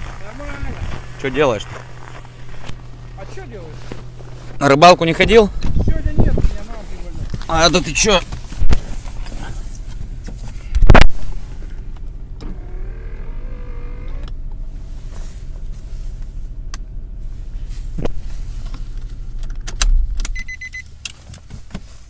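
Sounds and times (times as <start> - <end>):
car engine idling: 0.0 - 22.0
electric window motor whining: 12.4 - 14.4
electronic warning beeps: 20.3 - 20.9.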